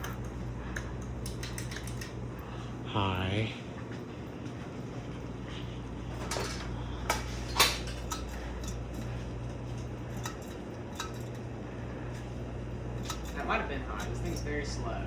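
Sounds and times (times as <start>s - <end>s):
light metallic clinks: 0.0s - 2.4s, 6.2s - 11.6s, 12.7s - 14.9s
ceiling fans humming: 0.0s - 15.0s.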